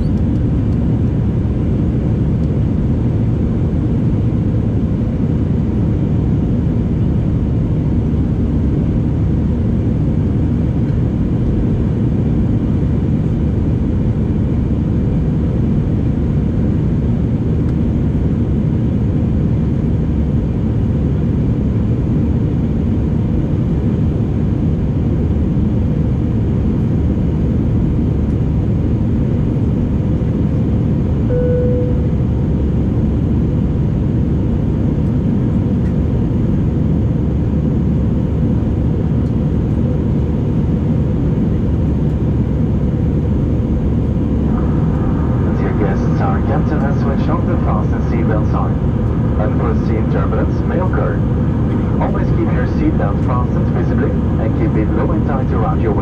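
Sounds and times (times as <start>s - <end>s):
faint steady hum: 31.1s - 33.2s, 41.4s - 56.0s
engines and air rushing: 44.2s - 56.0s.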